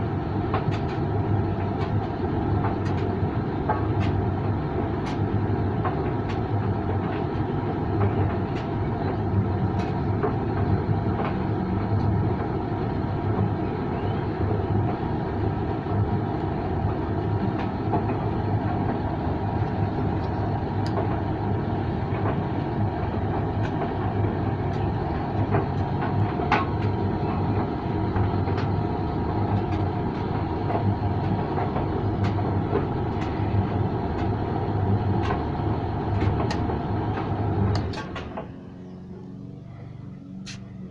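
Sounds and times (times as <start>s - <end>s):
tumble dryer running: 0.0s - 40.9s.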